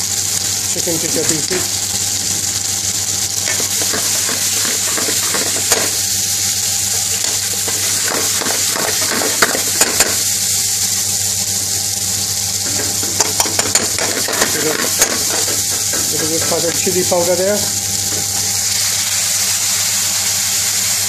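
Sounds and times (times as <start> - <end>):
food sizzling in hot oil: 0.0 - 21.0
metal spoon clicking on pan: 7.2 - 10.2, 12.7 - 16.6.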